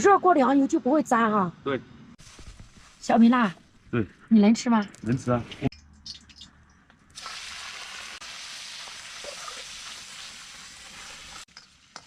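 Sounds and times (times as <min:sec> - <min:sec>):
food sizzling in hot oil: 0:07.1 - 0:12.0.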